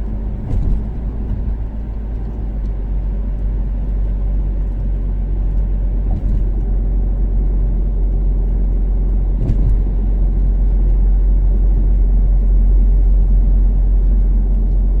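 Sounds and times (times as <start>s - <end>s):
car engine and road noise: 0.0s - 15.0s
thump: 0.4s - 1.0s, 6.1s - 6.6s, 9.4s - 9.9s.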